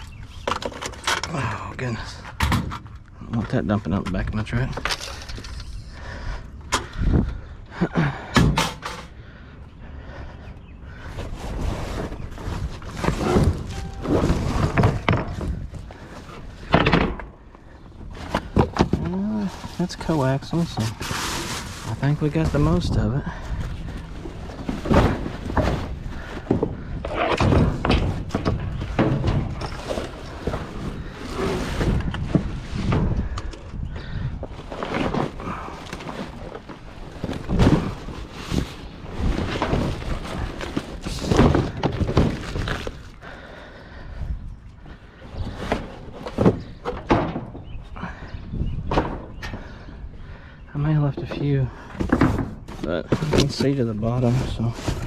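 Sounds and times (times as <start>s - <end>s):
scrap clattering in a dumpster: 11.4s - 17.0s, 18.1s - 33.4s
scrap items knocking and clattering: 24.0s - 33.4s, 51.2s - 55.0s.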